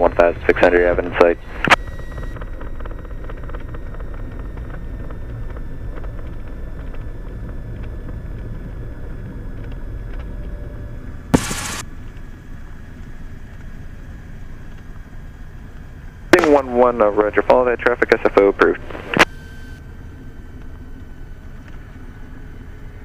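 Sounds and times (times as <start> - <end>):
airplane engine drone: 0.0 - 23.0
radio static burst: 11.4 - 11.8, 16.4 - 19.3.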